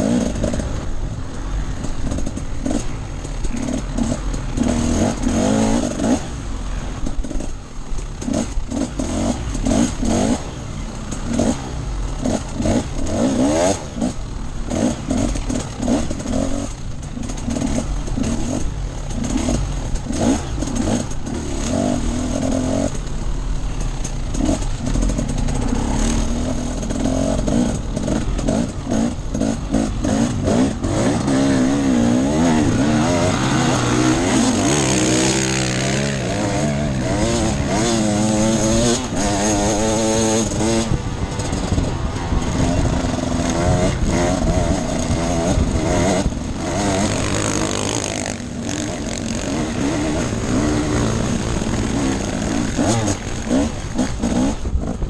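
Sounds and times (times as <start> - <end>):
dirt bike engine revving: 0.0 - 55.0
wind rumble on microphone: 40.4 - 47.5, 48.3 - 55.0.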